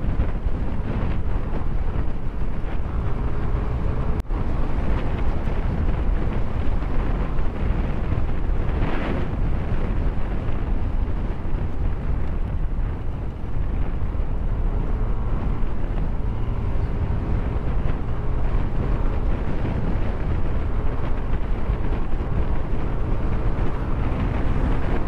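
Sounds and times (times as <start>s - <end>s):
motorcycle running: 0.0s - 25.0s
road noise: 0.0s - 25.0s
wind rumbling on microphone: 0.0s - 25.0s.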